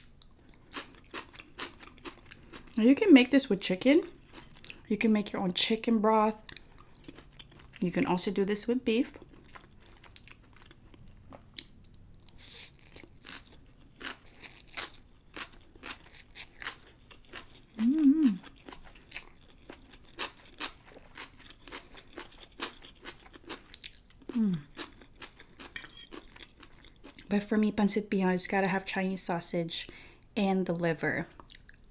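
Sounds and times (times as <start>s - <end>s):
person chewing noodles: 0.0s - 2.8s, 4.1s - 4.9s, 6.4s - 7.8s, 9.2s - 27.3s
person humming in enjoyment: 17.8s - 18.4s, 24.4s - 24.7s.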